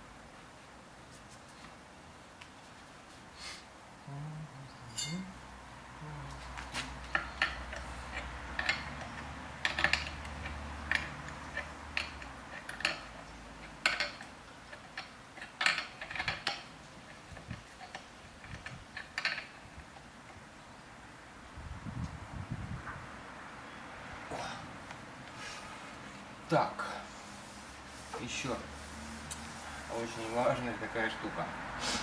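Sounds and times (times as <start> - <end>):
metal tools clinking: 4.9 - 5.3.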